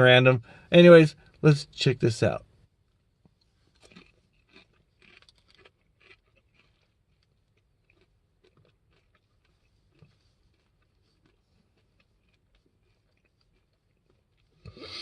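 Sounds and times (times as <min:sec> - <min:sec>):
potato chip crunching: 0:03.7 - 0:14.7.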